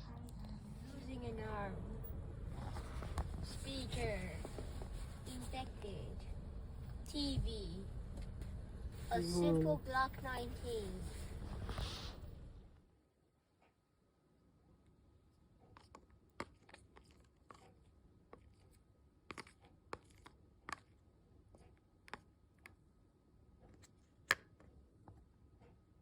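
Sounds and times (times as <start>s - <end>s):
faint high hum: 0.0s - 12.8s.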